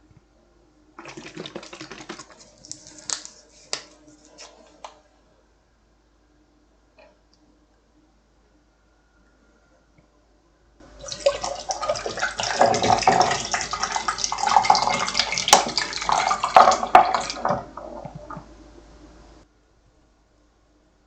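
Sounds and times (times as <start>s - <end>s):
slurping and gulping drink: 1.0s - 3.1s, 11.1s - 18.5s.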